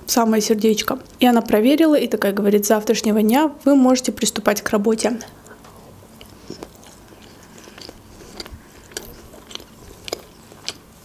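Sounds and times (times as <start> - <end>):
person chewing crunchy food: 5.3 - 11.0.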